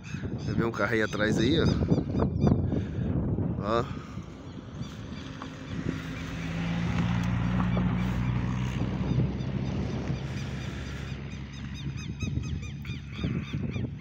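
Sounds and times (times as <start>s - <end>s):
car engine running: 4.0s - 13.2s.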